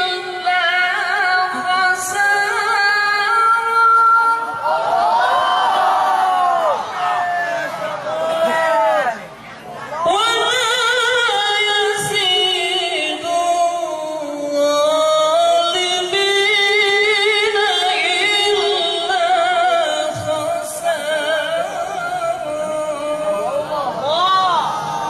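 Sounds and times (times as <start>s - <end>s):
person reciting melodically: 0.0s - 4.5s, 10.0s - 24.7s.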